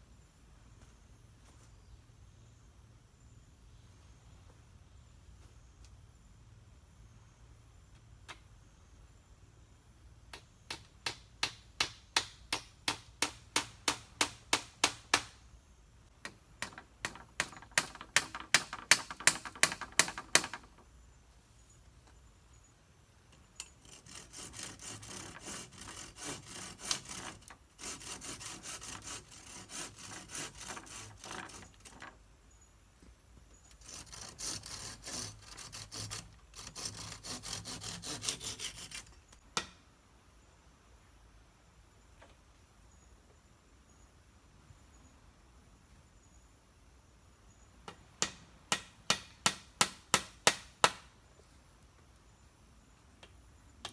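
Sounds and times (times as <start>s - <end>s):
hand saw cutting wood: 16.6s - 20.8s, 23.6s - 32.2s, 33.7s - 39.3s
rasping and scraping on wood: 16.6s - 20.8s, 23.6s - 32.2s, 33.6s - 39.4s.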